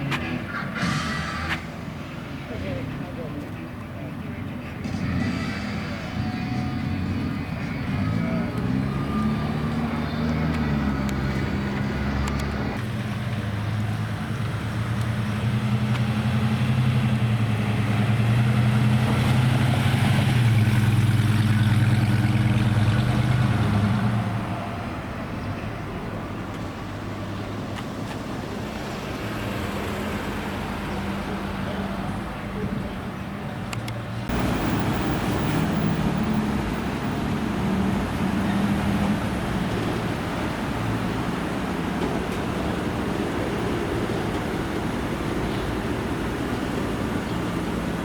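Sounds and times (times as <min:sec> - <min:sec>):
car engine running: 0:34.3 - 0:48.0.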